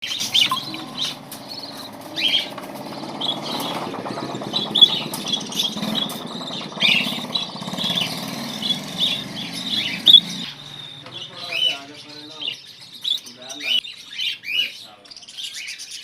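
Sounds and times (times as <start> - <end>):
budgerigars chirping: 0.0 - 16.0
low engine-like rumble: 0.3 - 11.6.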